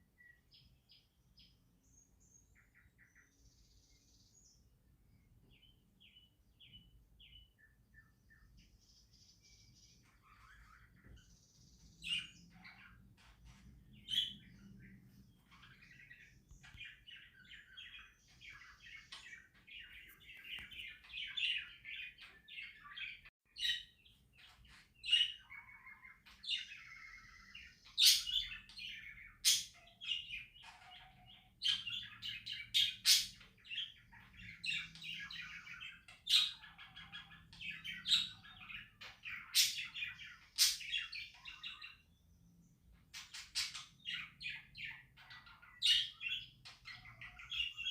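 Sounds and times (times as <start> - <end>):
budgerigars chattering and warbling: 9.7 - 42.1, 43.0 - 47.9.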